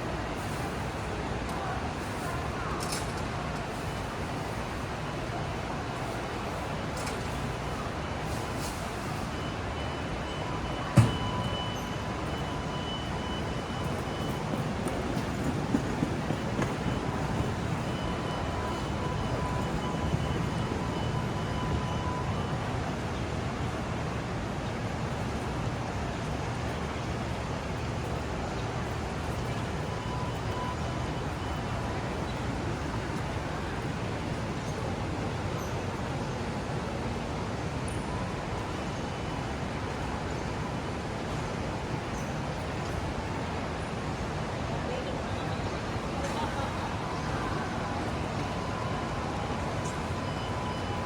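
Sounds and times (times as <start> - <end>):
train rumble: 0.0 - 51.0
faint brief tone: 8.6 - 15.6.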